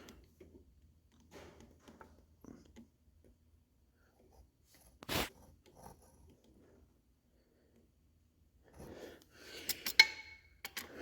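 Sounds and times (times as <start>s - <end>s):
wrench handling clicks and rustles: 9.5s - 11.0s.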